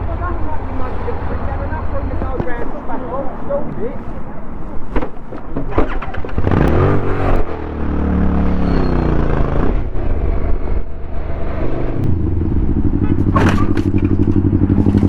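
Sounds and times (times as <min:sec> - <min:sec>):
motorcycle engine revving: 0:05.8 - 0:15.0.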